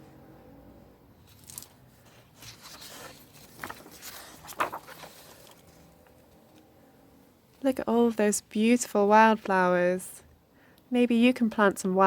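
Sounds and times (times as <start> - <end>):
short rustles and handling noises: 1.2 - 6.7.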